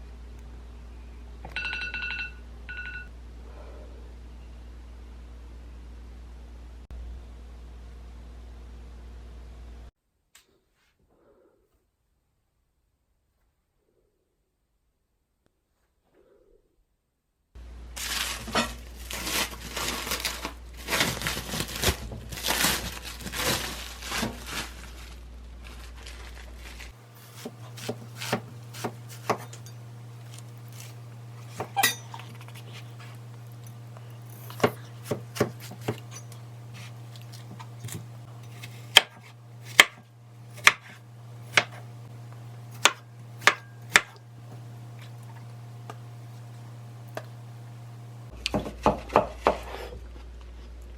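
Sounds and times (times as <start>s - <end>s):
steady low hum: 0.0s - 9.9s, 17.6s - 48.5s
dishes and utensils clattering: 31.4s - 36.4s.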